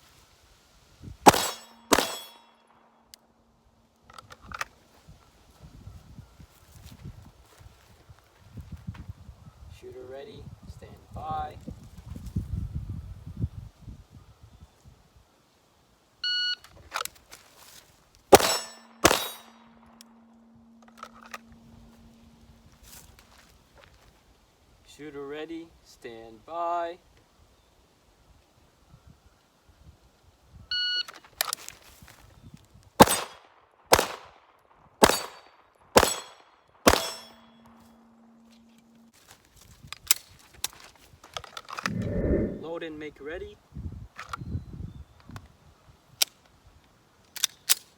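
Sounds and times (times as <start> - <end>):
handgun shots: 1.3 - 2.5, 18.3 - 19.8, 33.0 - 34.3, 35.0 - 37.6
steel target ringing: 1.3 - 2.6, 18.3 - 20.7, 35.0 - 35.4, 36.0 - 38.4.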